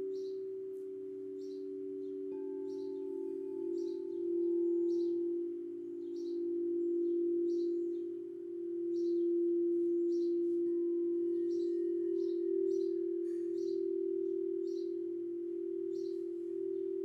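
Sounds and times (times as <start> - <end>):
singing bowl ringing: 0.0 - 17.0
high bird chirps: 1.2 - 17.0.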